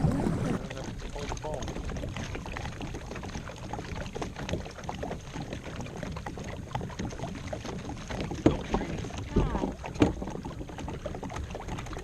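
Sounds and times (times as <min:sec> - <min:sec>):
low rumble: 0:00.0 - 0:01.2
knocks and handling on kayak: 0:00.0 - 0:12.0.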